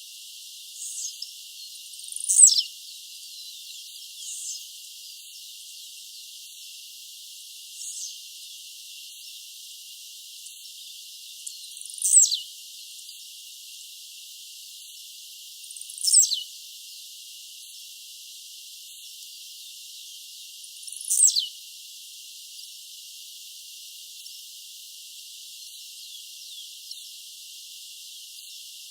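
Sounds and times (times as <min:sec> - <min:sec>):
steady high hiss: 0:06.8 - 0:08.4.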